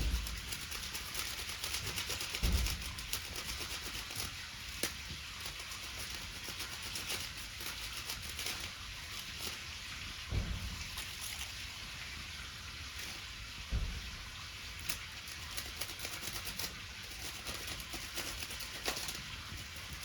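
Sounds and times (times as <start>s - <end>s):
low rumbles: 10.2s - 12.7s.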